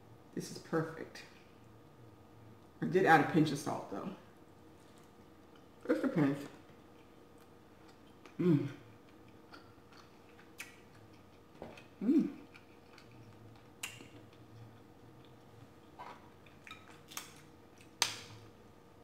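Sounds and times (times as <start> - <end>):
person chewing: 6.5 - 18.4
person humming mm: 8.3 - 8.8, 12.0 - 12.5.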